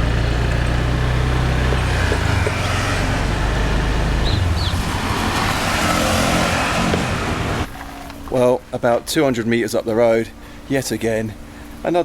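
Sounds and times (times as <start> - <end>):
motorbike engine running: 0.0 - 5.7
wind rushing over microphone: 2.4 - 7.7.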